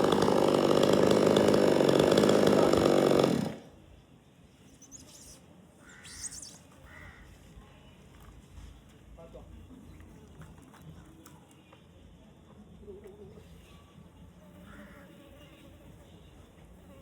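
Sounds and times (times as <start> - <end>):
chainsaw running: 0.0 - 3.7
faint bird chirps: 4.6 - 8.0.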